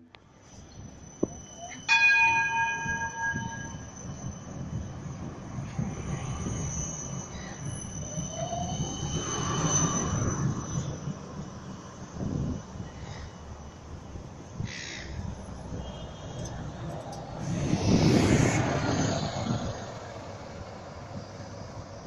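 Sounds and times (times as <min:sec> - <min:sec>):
tram rumbling on tracks: 0:00.0 - 0:22.0
tram wheel squeal: 0:00.0 - 0:22.0
tram bell ding: 0:00.8 - 0:06.6.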